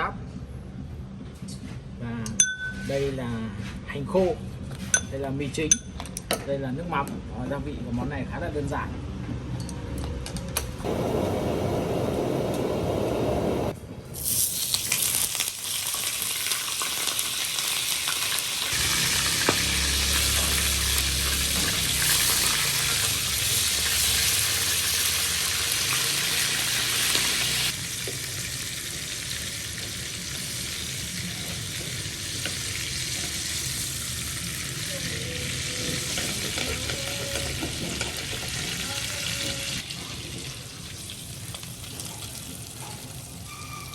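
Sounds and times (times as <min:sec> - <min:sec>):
hot oil sizzling: 0:10.8 - 0:43.9.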